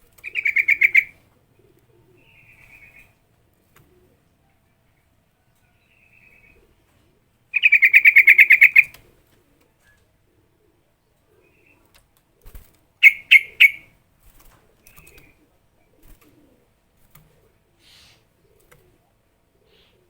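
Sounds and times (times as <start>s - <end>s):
bird chirping: 0.2s - 1.1s, 7.5s - 9.0s, 13.0s - 13.9s.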